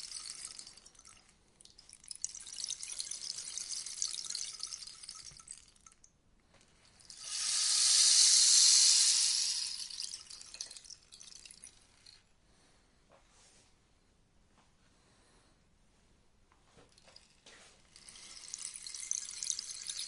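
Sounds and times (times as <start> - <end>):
rainstick pebbles cascading: 0.0 - 6.0, 7.1 - 12.2, 17.8 - 20.0.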